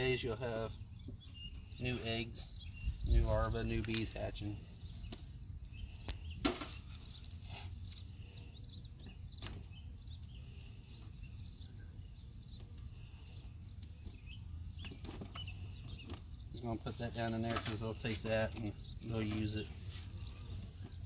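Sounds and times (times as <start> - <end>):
small birds chirping: 0.0 - 21.0
sharp clicks of hive frames: 3.8 - 4.3.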